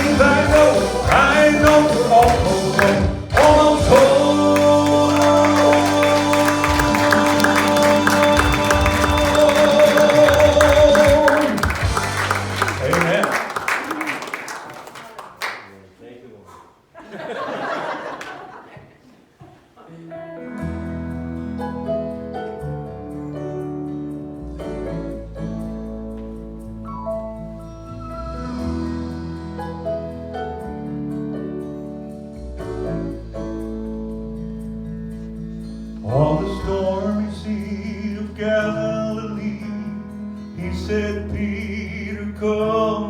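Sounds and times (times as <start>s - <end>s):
slow piano music: 0.0s - 13.2s, 20.2s - 43.0s
percussion hits: 0.0s - 13.3s
gospel song final chord: 0.0s - 14.3s.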